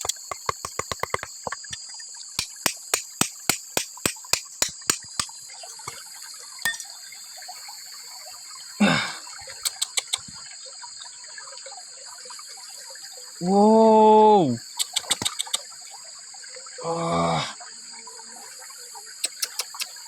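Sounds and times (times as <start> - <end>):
hammer tapping on rock: 0.0 - 1.8, 2.4 - 6.0, 6.7 - 6.9
high insect drone: 0.0 - 20.0.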